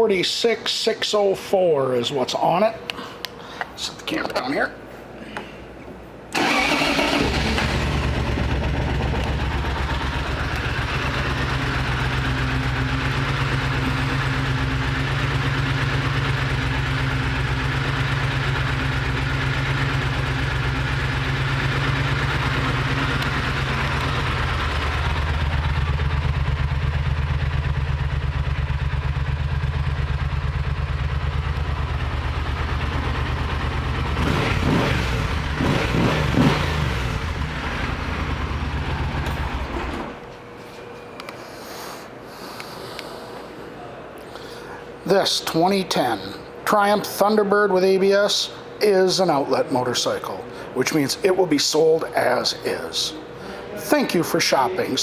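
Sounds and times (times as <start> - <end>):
motorcycle engine starting and idling: 6.3 - 40.4
motorcycle engine revving: 6.4 - 40.2.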